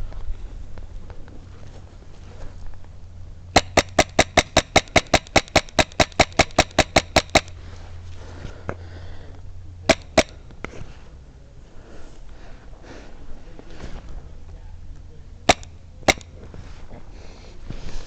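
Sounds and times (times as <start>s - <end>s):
airsoft gun shots: 3.5s - 7.6s, 9.9s - 10.4s, 15.5s - 16.3s.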